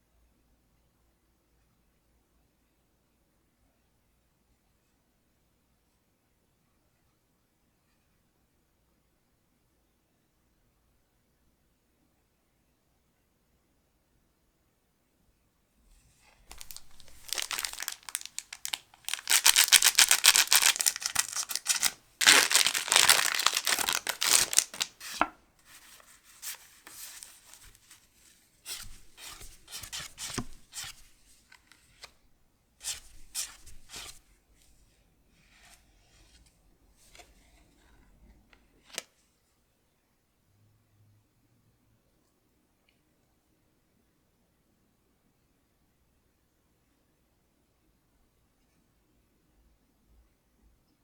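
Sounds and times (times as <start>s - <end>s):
wrapper and cards rustling: 16.4s - 32.1s
foil wrapper tearing: 16.5s - 25.3s.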